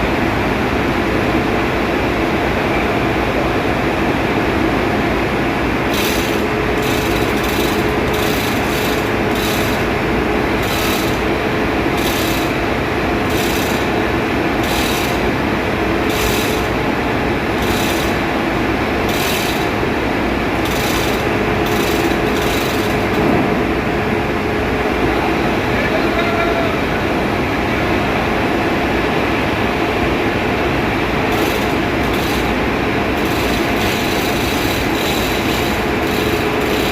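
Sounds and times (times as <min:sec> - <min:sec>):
machinery drone: 0:00.0 - 0:36.9.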